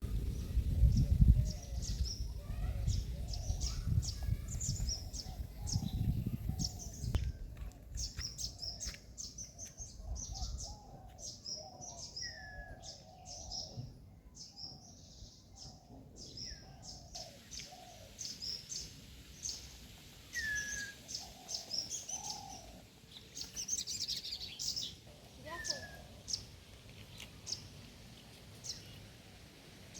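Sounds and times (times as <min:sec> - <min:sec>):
lower bird calls: 0:15.6 - 0:22.8.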